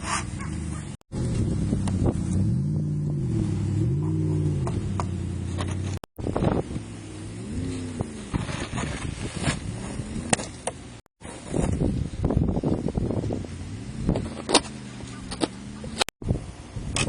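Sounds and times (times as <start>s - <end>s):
knocks and scrapes: 0.0s - 2.5s, 3.8s - 6.6s, 7.7s - 12.0s, 14.0s - 16.1s
vehicle engine revving: 0.0s - 11.0s, 13.2s - 16.1s.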